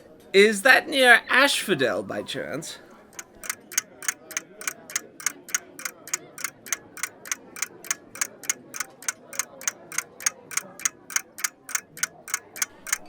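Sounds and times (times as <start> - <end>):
rapid ticking: 3.1 - 13.0.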